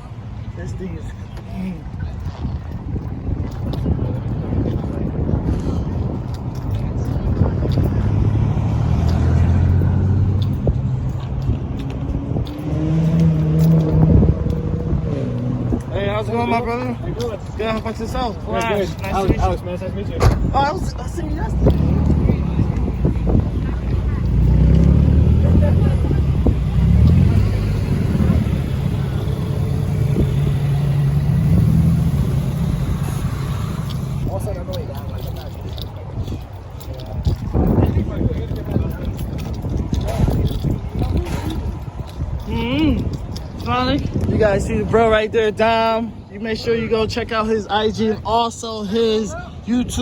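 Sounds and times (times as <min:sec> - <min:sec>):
car engine idling: 0:19.2 - 0:34.9.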